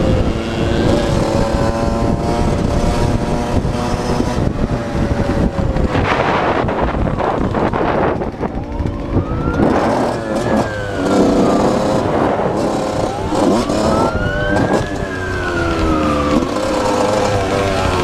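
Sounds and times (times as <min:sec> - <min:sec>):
vehicle engine and road noise: 0:00.0 - 0:18.0
emergency vehicle siren wailing: 0:05.9 - 0:18.0.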